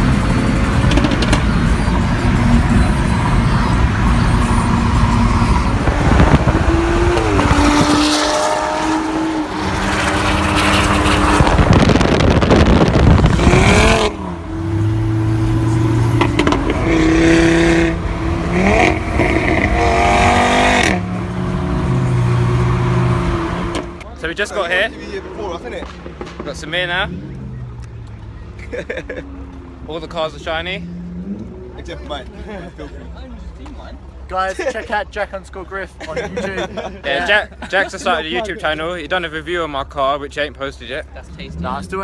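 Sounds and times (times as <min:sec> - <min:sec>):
car engine accelerating: 0:00.0 - 0:24.1.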